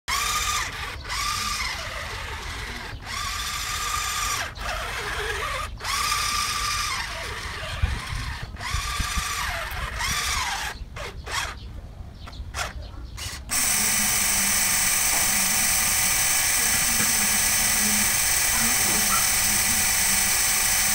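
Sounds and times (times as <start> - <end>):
small electric motor whining: 0.1 - 11.6, 12.5 - 20.9
small water pump whirring: 0.1 - 11.6, 12.6 - 20.9.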